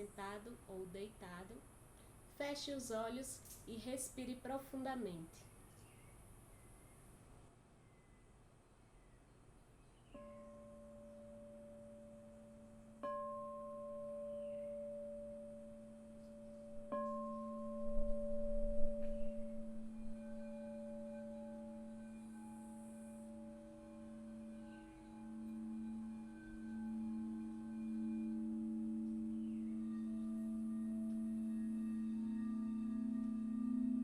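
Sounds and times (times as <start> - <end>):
singing bowl ringing: 10.1 - 34.0
higher sustained tones: 10.2 - 34.0.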